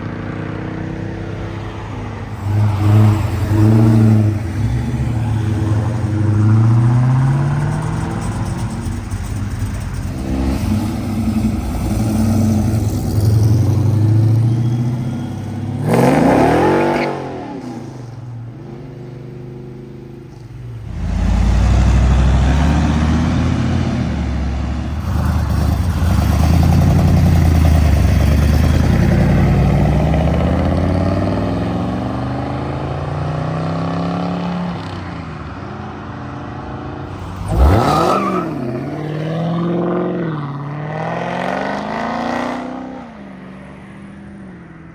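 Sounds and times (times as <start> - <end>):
car engines accelerating: 0.0 - 44.9.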